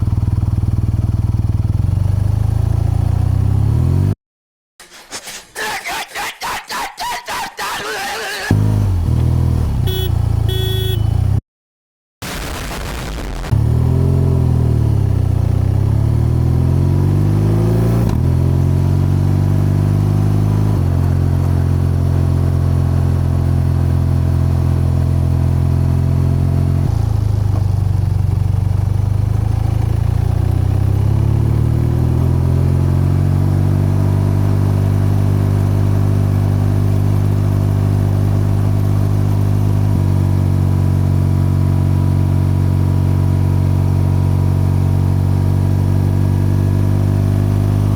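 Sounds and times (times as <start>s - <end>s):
motorcycle engine and exhaust: 0.0s - 4.2s, 8.5s - 11.4s, 13.5s - 47.9s.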